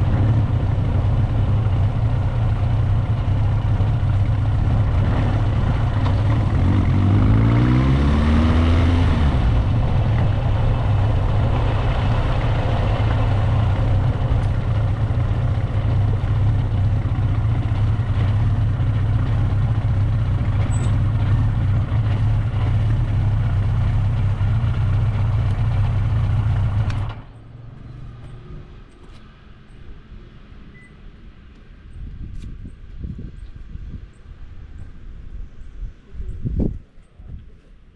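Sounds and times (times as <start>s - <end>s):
motorcycle engine running: 0.0s - 28.4s.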